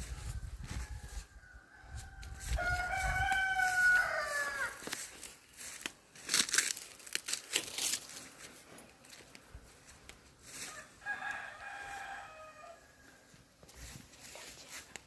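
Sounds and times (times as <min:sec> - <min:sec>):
rooster crowing: 0:00.6 - 0:05.0, 0:10.5 - 0:13.3
rustling and crackling: 0:02.3 - 0:10.8.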